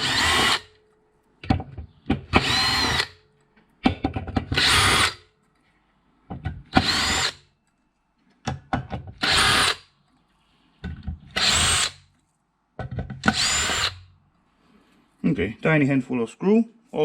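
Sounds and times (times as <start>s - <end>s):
cordless drill whining: 0.0s - 0.7s, 2.3s - 3.2s, 4.6s - 5.2s, 6.7s - 7.4s, 9.2s - 9.8s, 11.3s - 12.0s, 13.2s - 14.0s
drill bit and screws clicking: 2.3s - 3.2s, 13.2s - 14.0s.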